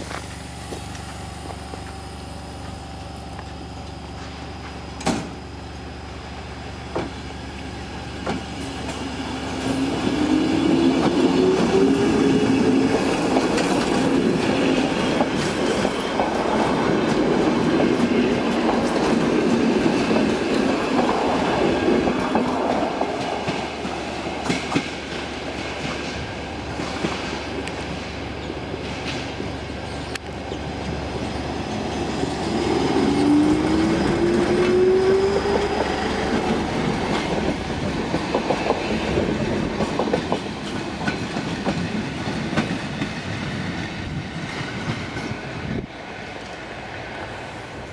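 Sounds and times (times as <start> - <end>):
electric train whine: 0.0 - 47.9
wheels clacking over rail joints: 11.0 - 45.4.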